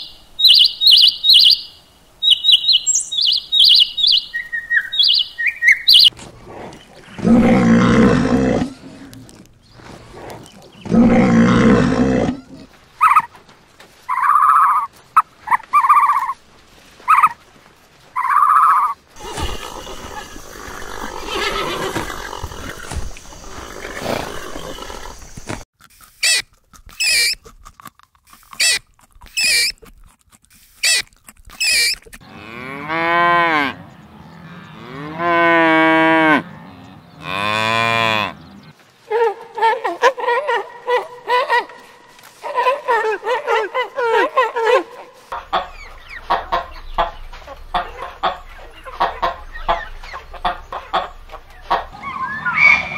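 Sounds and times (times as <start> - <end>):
animal calls: 2.2 - 13.3, 14.1 - 16.4, 17.0 - 17.4, 18.2 - 25.5, 28.6 - 29.8, 30.8 - 32.4, 33.5 - 52.9
loud animal roar: 6.2 - 12.7, 32.2 - 38.7
cattle mooing: 6.5 - 9.5, 10.2 - 12.7, 32.2 - 38.7.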